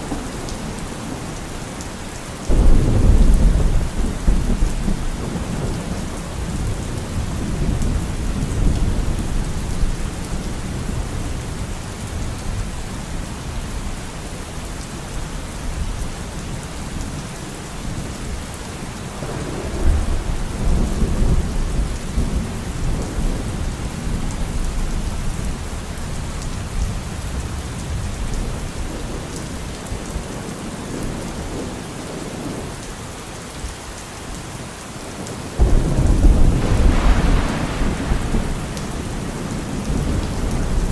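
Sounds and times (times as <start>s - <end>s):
steady rain falling: 0.0s - 40.9s
rolling thunder: 2.5s - 12.4s, 19.1s - 25.5s, 35.6s - 40.9s.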